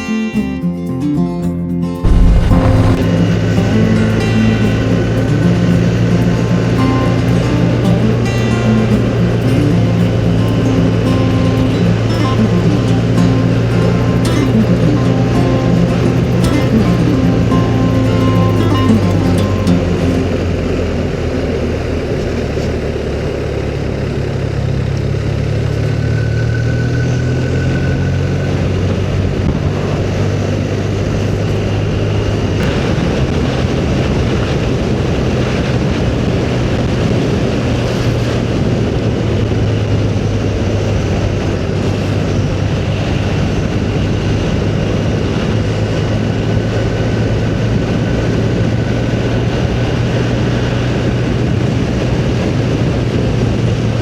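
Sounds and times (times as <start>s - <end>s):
motorcycle engine running: 2.0s - 34.2s
wind and road noise: 2.0s - 54.0s.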